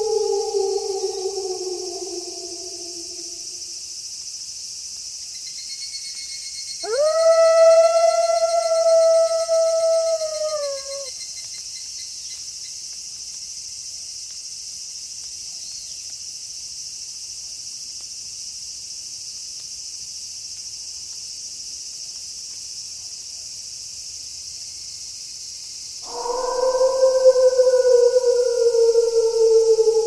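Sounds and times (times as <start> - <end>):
wolf howl: 0.0 - 3.7, 6.8 - 11.1, 26.0 - 30.0
crickets chirping: 0.0 - 4.1, 5.3 - 12.1, 25.7 - 30.0.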